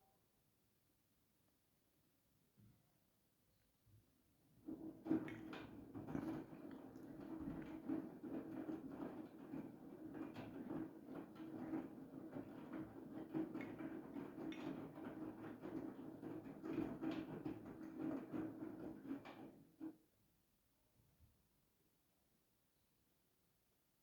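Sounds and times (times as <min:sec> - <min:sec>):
laundry tumbling soft knocks: 0:04.6 - 0:19.9
washing machine motor humming: 0:04.6 - 0:19.9
water sloshing: 0:04.7 - 0:08.3.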